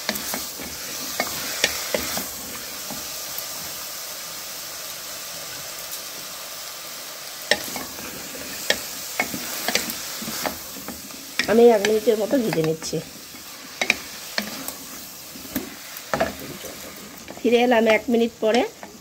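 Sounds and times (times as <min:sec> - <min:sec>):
vegetables sizzling in butter: 0:00.0 - 0:19.0.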